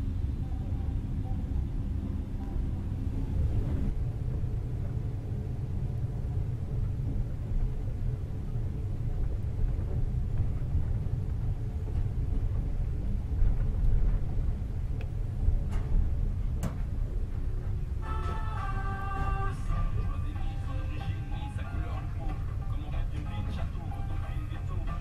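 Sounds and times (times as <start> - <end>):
train rumbling: 0.0 - 25.0
music: 18.0 - 25.0.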